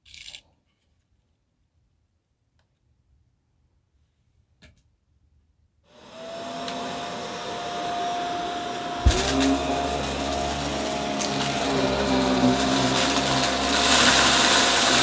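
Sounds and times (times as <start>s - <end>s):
vacuum cleaner motor whine: 5.9s - 15.0s
deep loud hum: 8.1s - 15.0s
thump: 9.0s - 9.6s.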